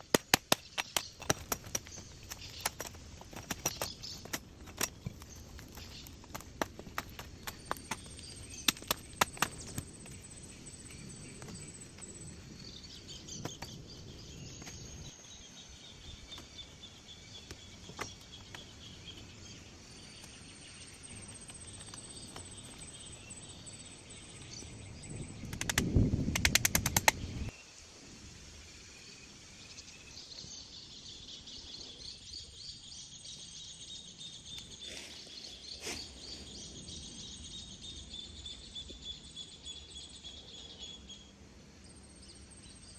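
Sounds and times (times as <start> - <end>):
bird calls: 0.0 - 27.7.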